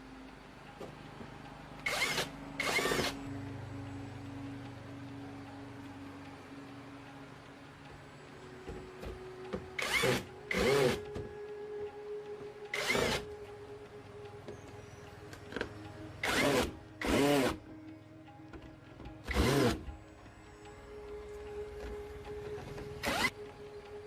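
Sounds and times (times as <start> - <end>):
power tool motor whirring: 1.8 - 3.2, 9.8 - 11.0, 12.7 - 13.3, 16.2 - 17.6, 19.3 - 19.8, 23.0 - 23.3.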